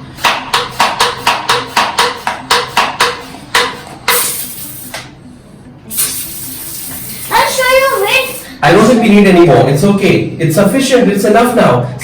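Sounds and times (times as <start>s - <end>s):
foam sprayer nozzle spitting: 4.1s - 5.0s, 5.9s - 7.4s
hiss of spray: 4.1s - 5.0s, 5.9s - 7.6s.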